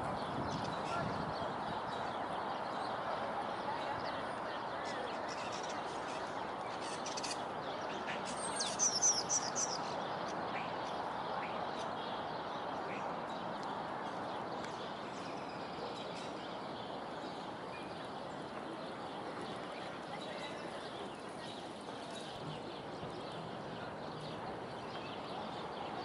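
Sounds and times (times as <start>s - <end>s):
outdoor background noise: 0.0s - 26.0s
bird chirping: 5.3s - 13.6s.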